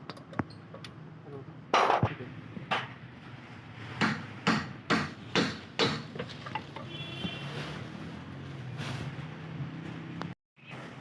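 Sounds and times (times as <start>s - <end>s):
hammer striking metal: 4.0s - 6.1s.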